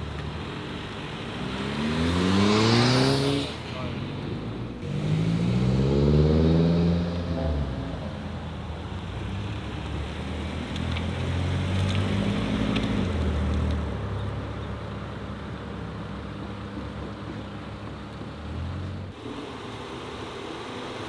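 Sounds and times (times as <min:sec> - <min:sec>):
car engine revving: 0:00.0 - 0:14.4, 0:17.6 - 0:20.7
second car engine passing: 0:00.0 - 0:14.6.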